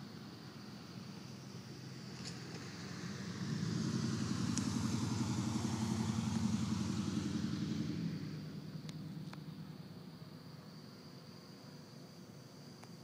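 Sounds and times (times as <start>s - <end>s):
vehicle engine passing by: 0.8s - 10.6s.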